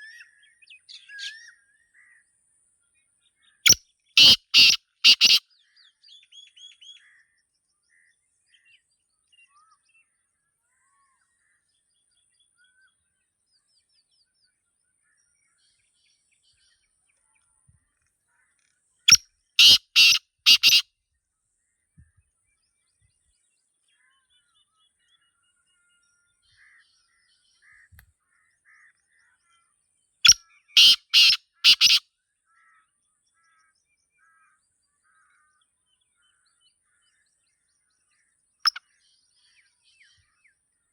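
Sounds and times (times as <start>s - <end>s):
small birds chirping: 3.4s - 7.1s, 15.2s - 20.8s, 21.9s - 32.0s, 33.4s - 40.6s
francolin harsh grating call: 4.2s - 5.4s, 19.6s - 20.8s, 30.8s - 32.0s.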